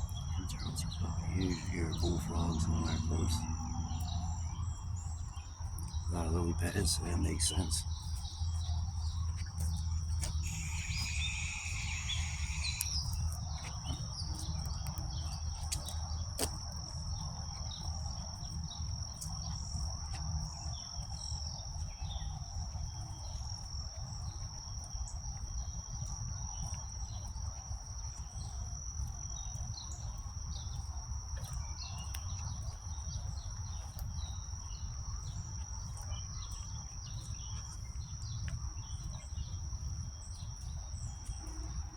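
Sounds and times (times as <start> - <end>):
low rumble: 0.0 - 9.2
higher insect call: 0.0 - 41.9
insects trilling: 0.0 - 41.9.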